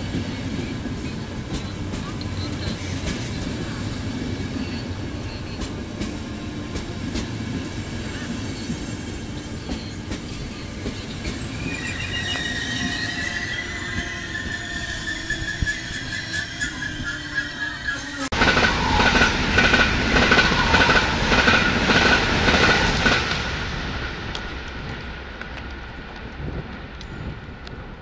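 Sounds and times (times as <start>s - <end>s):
train rumbling past: 0.0s - 28.0s
metallic wheel squeal: 9.7s - 18.3s.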